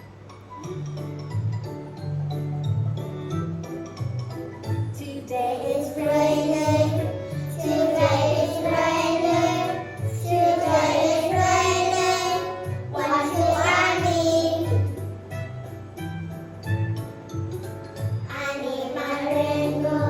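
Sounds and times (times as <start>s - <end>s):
child singing: 5.0s - 14.9s, 18.3s - 20.0s
backing track with steady beat: 5.7s - 18.4s.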